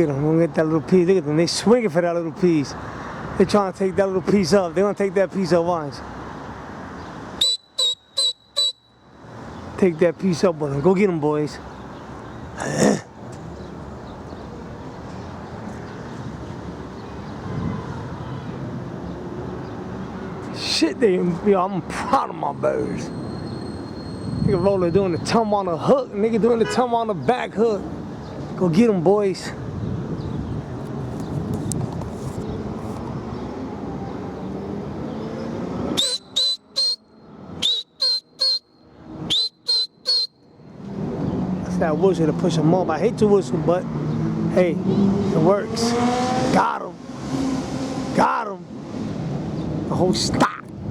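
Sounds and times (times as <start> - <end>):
man whistling rising blasts: 7.4 - 9.0, 35.9 - 40.5.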